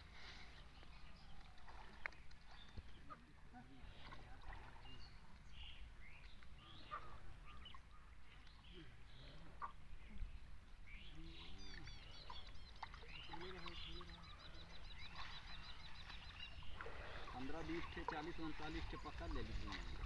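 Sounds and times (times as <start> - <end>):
bird chirps: 0.4 - 20.0.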